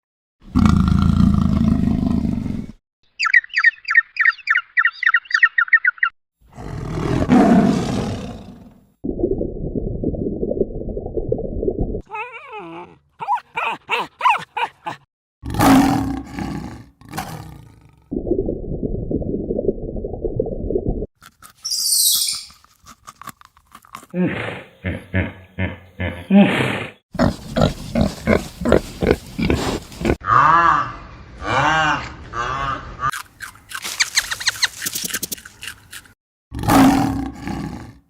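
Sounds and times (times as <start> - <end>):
deep animal roars: 0.4 - 2.8, 6.5 - 8.9, 15.4 - 18.3, 36.5 - 38.0.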